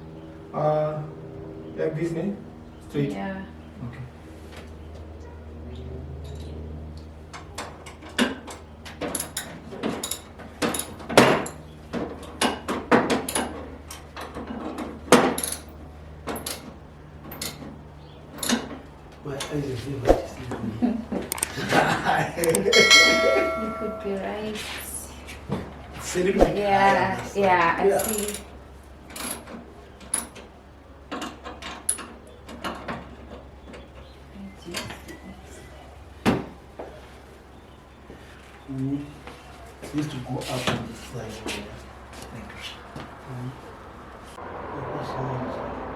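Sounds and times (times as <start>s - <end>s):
steady low hum: 15.4s - 30.8s.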